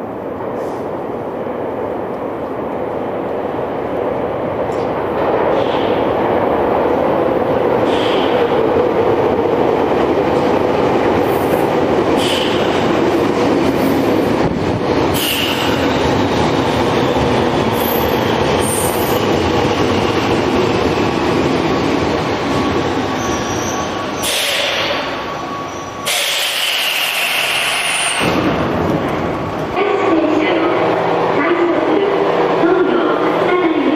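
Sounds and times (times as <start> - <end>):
train rumbling on rails: 0.0 - 33.9
high-pitched wheel squeals: 23.1 - 28.2.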